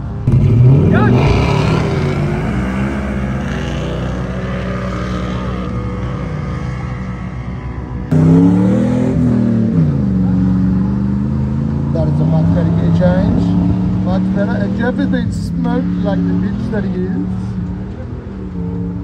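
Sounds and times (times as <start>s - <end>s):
engine revving hard: 0.3s - 5.8s, 8.1s - 10.2s.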